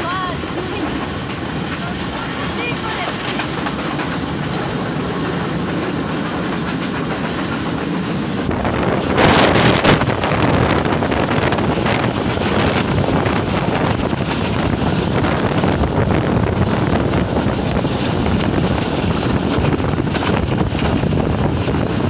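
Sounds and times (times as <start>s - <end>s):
passenger train rumbling: 0.0s - 22.0s
wheels clattering over rails: 0.0s - 22.0s.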